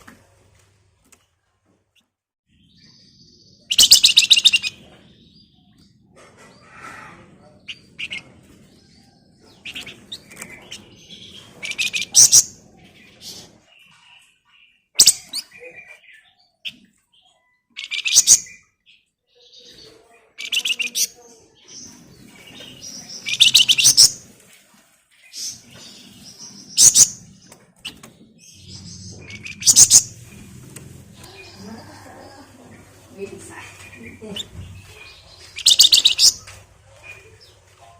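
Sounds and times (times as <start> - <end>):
soft sharp bird chirps: 33.8 - 37.6.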